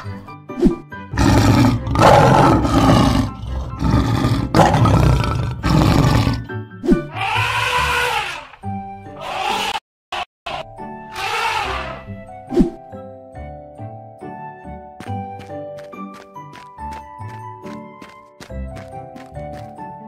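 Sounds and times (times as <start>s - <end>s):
light background music: 0.0s - 9.6s, 10.6s - 20.0s
lion roaring: 1.1s - 6.5s.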